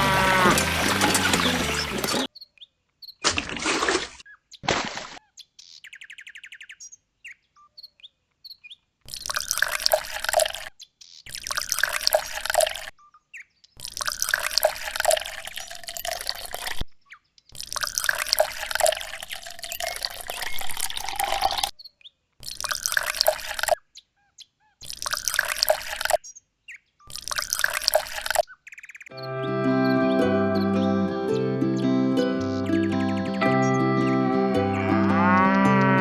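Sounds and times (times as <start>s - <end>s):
music: 0.0s - 2.3s, 29.1s - 36.0s
water trickling and splashing: 0.0s - 2.3s, 3.3s - 5.2s, 9.1s - 10.7s, 11.3s - 12.9s, 13.8s - 16.8s, 17.6s - 21.7s, 22.4s - 23.8s, 24.8s - 26.2s, 27.1s - 28.4s.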